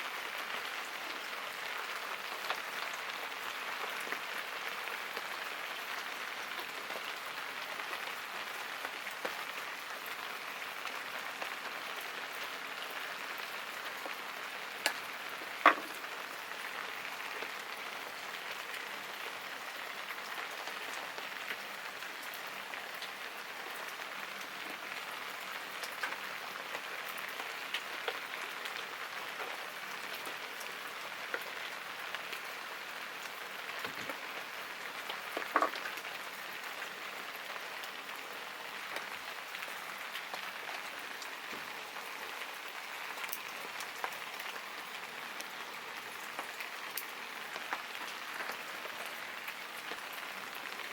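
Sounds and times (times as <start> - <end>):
steady rain hiss: 0.0 - 50.9.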